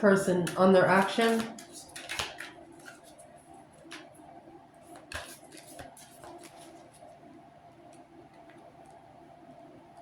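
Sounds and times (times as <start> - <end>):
faint steady hum: 0.0 - 10.0
cards clicking and tapping: 0.4 - 3.1, 4.9 - 6.7.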